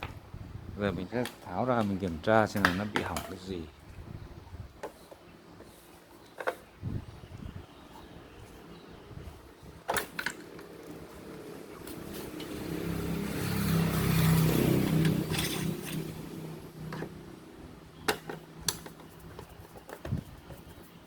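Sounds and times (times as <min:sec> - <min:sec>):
sharp clicks and knocks: 0:01.2 - 0:03.5
vehicle engine passing by: 0:10.4 - 0:18.0.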